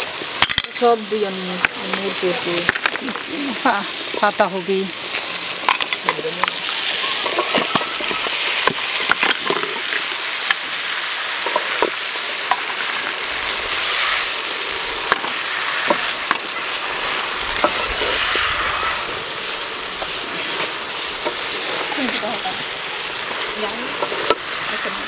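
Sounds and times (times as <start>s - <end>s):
cabbage sizzling in oil: 0.0s - 25.0s
wooden spatula scraping a pot: 13.7s - 25.0s.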